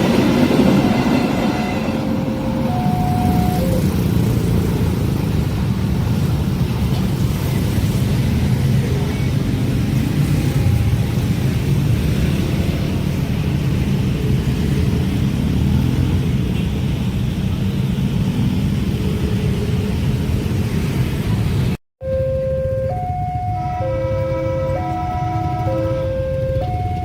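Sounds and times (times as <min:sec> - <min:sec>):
level-crossing warning alarm: 0:00.0 - 0:04.6, 0:22.0 - 0:27.0
train wheels rumbling on rails: 0:00.0 - 0:21.7.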